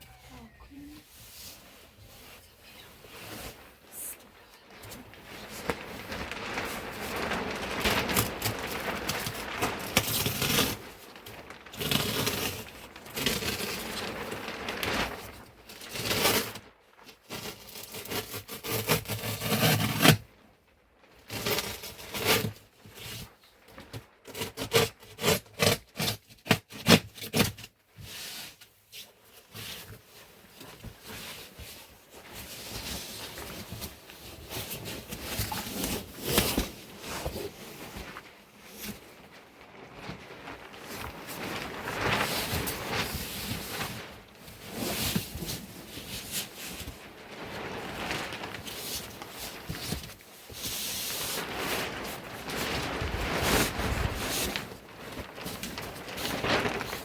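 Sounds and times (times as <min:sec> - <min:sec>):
scraping and rubbing: 0:01.0 - 0:20.3, 0:24.3 - 0:57.0
sharp scrapes and cracks: 0:04.8 - 0:20.3, 0:21.3 - 0:27.8.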